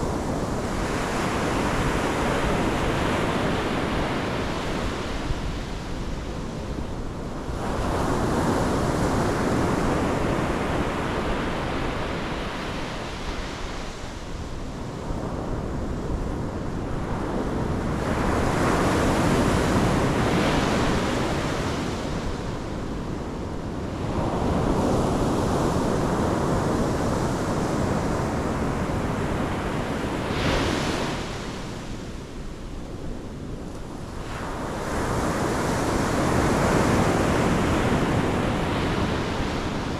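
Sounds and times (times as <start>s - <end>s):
ocean surf breaking on shore: 0.0s - 39.9s.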